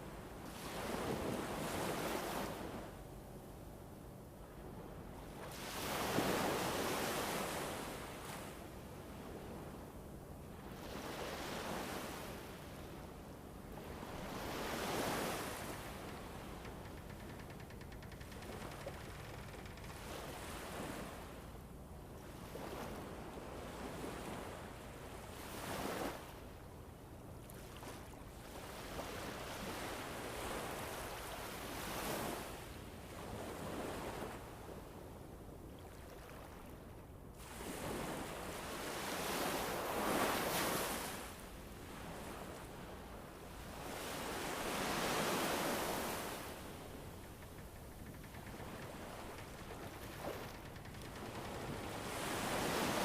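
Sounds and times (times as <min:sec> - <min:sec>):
gusting wind: 0:37.5 - 0:53.0.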